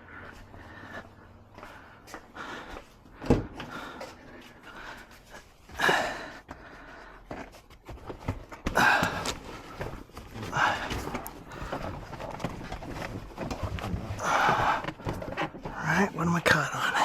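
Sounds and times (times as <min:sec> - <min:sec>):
seat scraping and rustling: 0:07.3 - 0:15.8.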